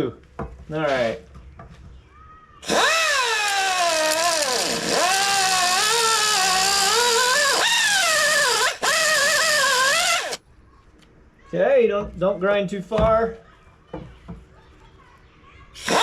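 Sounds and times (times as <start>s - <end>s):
die grinder cutting metal: 2.6s - 10.4s.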